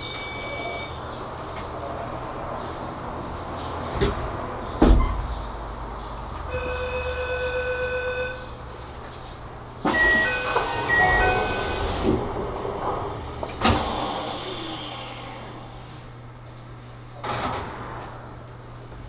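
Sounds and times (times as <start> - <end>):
train door chime: 0.0 - 1.0, 9.8 - 14.6
doors shutting thud: 3.9 - 5.5, 9.8 - 15.8, 17.2 - 18.6
air hissing: 13.6 - 16.1.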